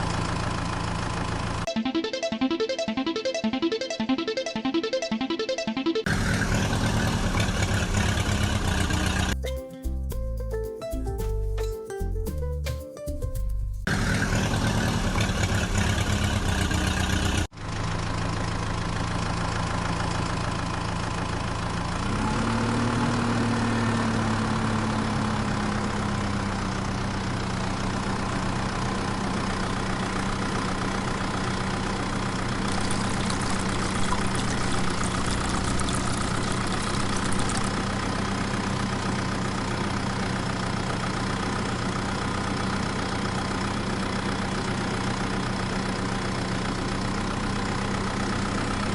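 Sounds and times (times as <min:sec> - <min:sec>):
engine idling: 0:00.0 - 0:01.7, 0:06.1 - 0:09.5, 0:13.8 - 0:48.9.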